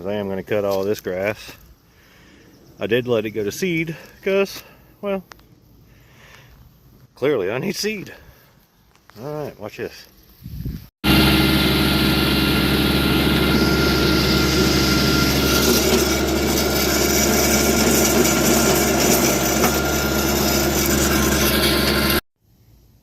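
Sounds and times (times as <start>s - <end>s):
tractor engine running: 11.0s - 22.2s.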